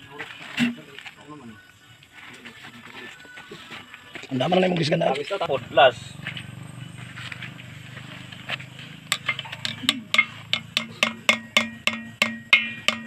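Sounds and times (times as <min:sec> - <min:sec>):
metal-on-metal strikes: 0:09.1 - 0:13.0.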